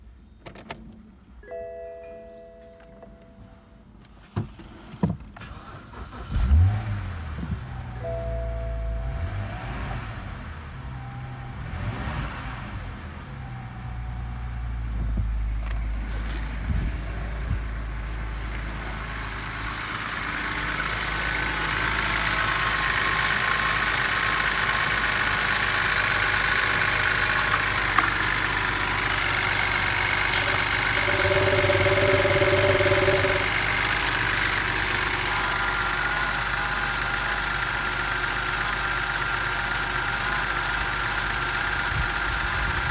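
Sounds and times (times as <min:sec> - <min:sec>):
car engine idling: 0:17.1 - 0:42.9.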